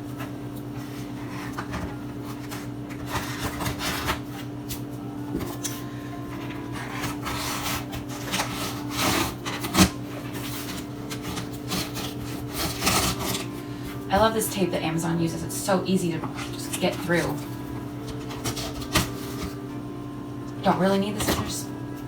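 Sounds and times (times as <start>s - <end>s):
steady low hum: 0.0s - 22.0s
cardboard box tape tearing: 6.8s - 13.5s, 18.1s - 19.6s.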